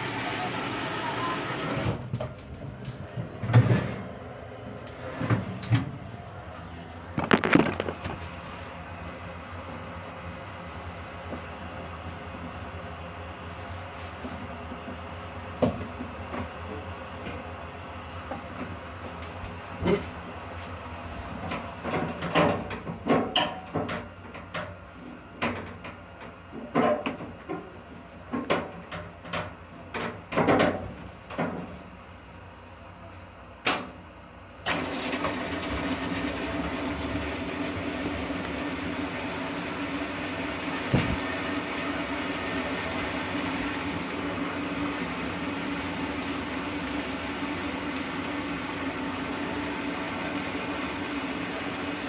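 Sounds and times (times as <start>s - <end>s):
washing machine running: 0.0s - 9.0s, 34.7s - 52.0s.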